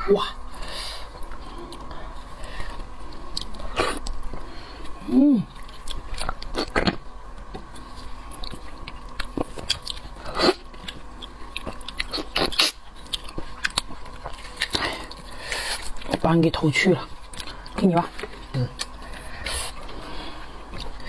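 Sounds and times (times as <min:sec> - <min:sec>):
close-miked chewing and biting: 0:02.6 - 0:16.3.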